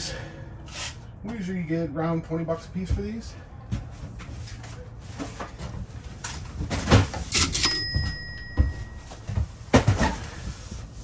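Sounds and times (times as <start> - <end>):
ringing ding: 7.4 - 9.3.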